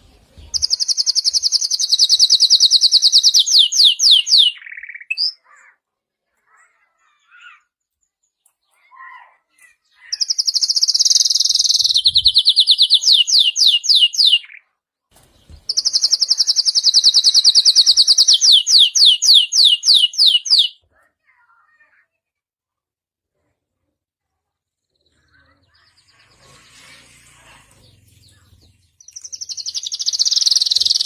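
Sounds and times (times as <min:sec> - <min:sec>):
canary singing: 0:00.0 - 0:05.8, 0:09.6 - 0:14.7, 0:15.6 - 0:20.8, 0:24.9 - 0:31.0.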